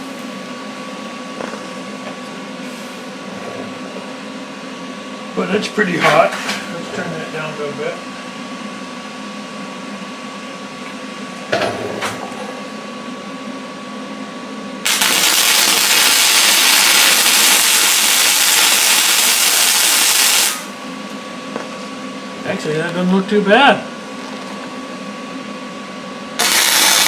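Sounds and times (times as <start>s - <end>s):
arc welder crackling: 14.8s - 20.9s, 26.4s - 27.0s.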